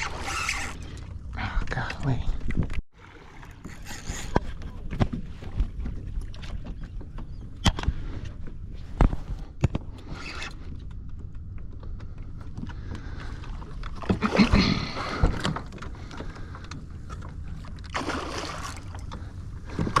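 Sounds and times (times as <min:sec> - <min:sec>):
water splashing: 0:17.8 - 0:19.3.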